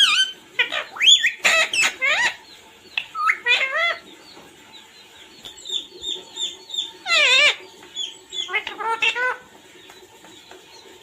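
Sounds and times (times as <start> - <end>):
parrot calling: 0.0 - 4.0, 5.5 - 9.5.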